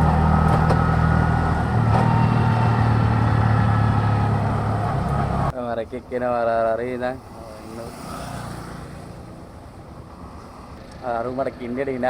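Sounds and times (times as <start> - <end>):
vehicle engine running: 0.0 - 5.5
road noise: 0.0 - 12.0.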